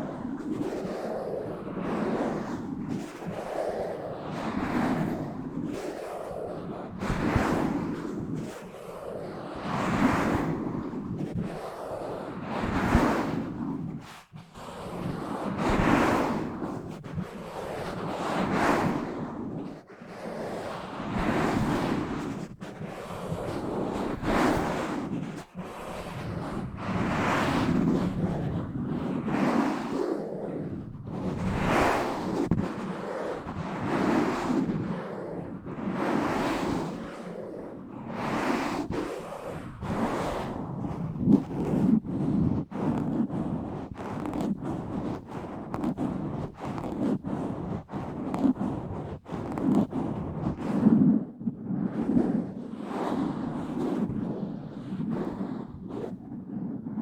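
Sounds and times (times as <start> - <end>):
fingers scratching microphone: 39.8 - 51.1.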